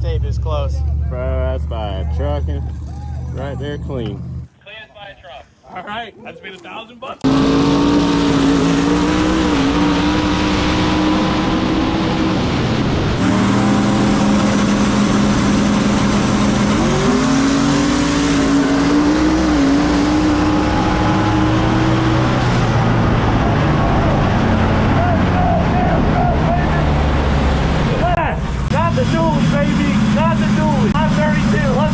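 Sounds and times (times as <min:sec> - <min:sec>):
racing engine at high revs: 0:07.2 - 0:31.9.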